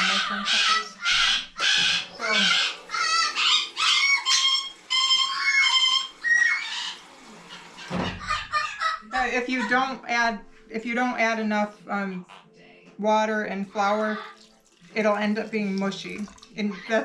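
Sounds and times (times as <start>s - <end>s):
parrots squawking and screeching: 0.0s - 10.0s, 14.0s - 14.5s.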